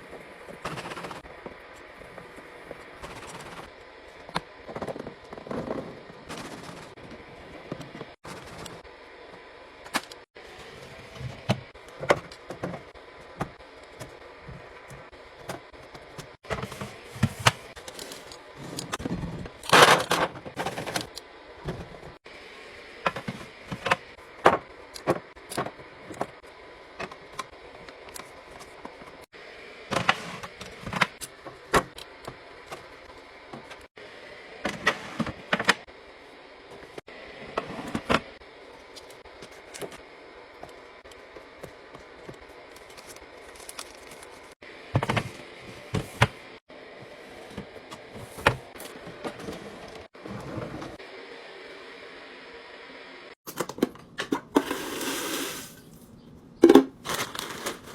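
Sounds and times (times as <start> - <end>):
cans and bottles clinking: 56.6 - 57.9.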